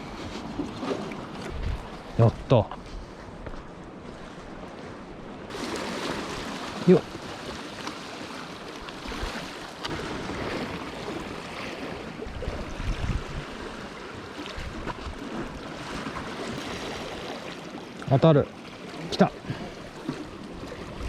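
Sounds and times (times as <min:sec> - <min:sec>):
wind buffeting microphone: 0:00.0 - 0:05.6, 0:09.0 - 0:17.0
water lapping at shore: 0:00.0 - 0:21.0.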